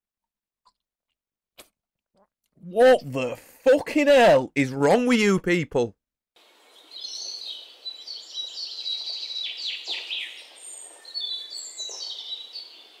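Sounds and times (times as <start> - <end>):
birds chirping and singing: 6.6 - 13.0
downward-swooping bird calls: 6.7 - 13.0.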